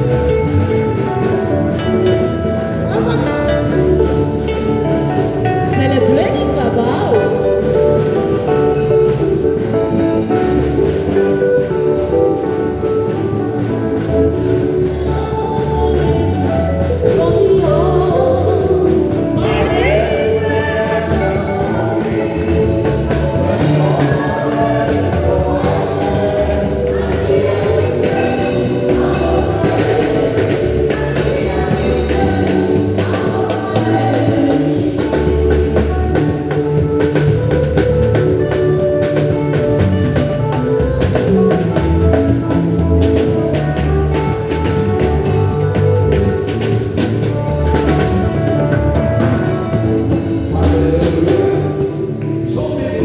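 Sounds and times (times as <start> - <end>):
drum kit: 0.0 - 53.0
gospel choir singing: 6.5 - 53.0.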